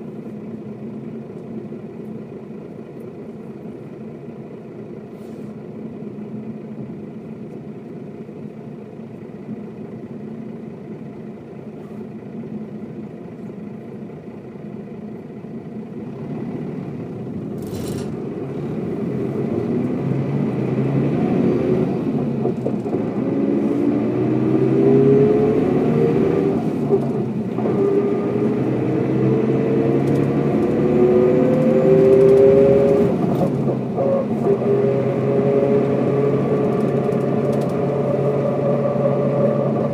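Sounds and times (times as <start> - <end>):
bus diesel engine accelerating: 0.0 - 39.9.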